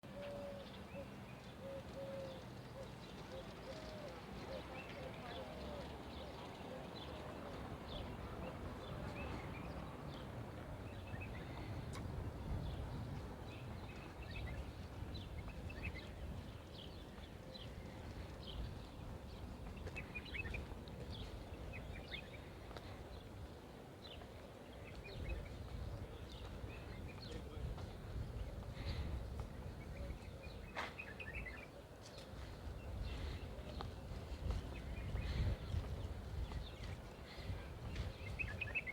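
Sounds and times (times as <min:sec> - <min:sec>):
small birds chirping: 0:24.0 - 0:38.9.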